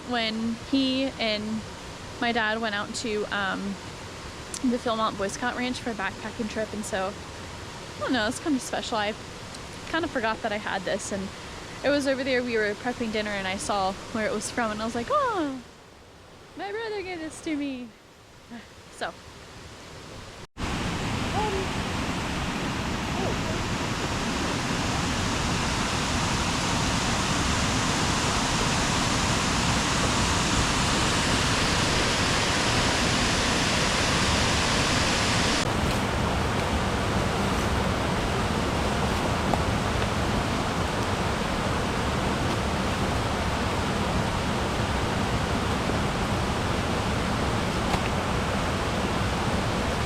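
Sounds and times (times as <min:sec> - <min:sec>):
creek water rushing: 0:19.5 - 0:50.0.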